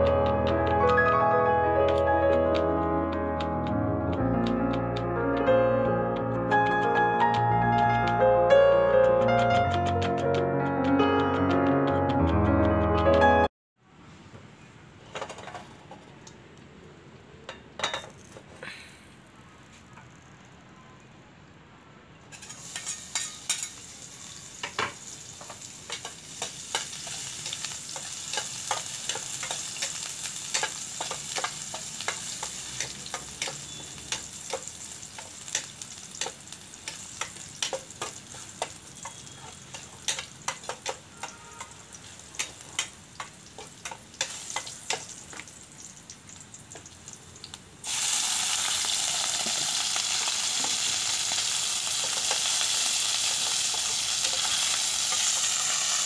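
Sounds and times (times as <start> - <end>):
metal spatula scraping pan: 22.3 - 23.8
garlic sizzling in a pan: 22.3 - 56.0.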